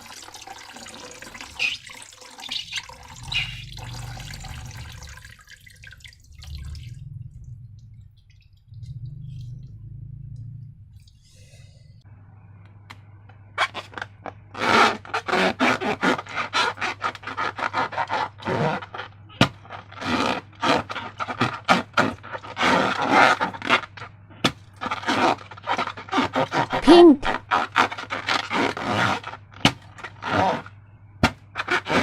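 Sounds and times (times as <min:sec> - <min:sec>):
balloons scraping and crackling: 0:01.3 - 0:01.9, 0:13.6 - 0:24.1, 0:24.7 - 0:32.0
steady low hum: 0:02.8 - 0:13.3.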